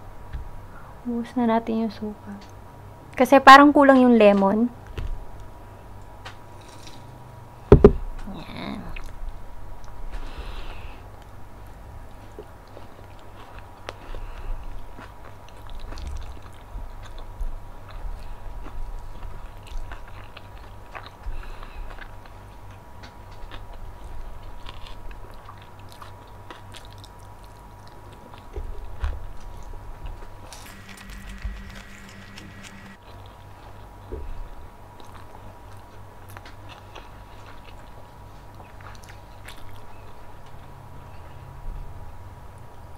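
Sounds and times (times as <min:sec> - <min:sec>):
chewing crisp food: 0:11.0 - 0:41.6
faint high whine: 0:30.5 - 0:33.0
brief steady tone: 0:30.7 - 0:33.0.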